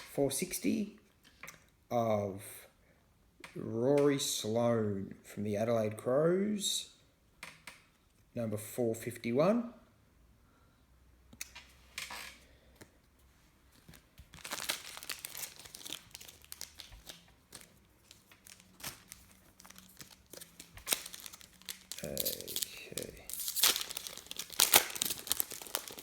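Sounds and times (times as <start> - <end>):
card wrapper crinkling and tearing: 13.8 - 26.0.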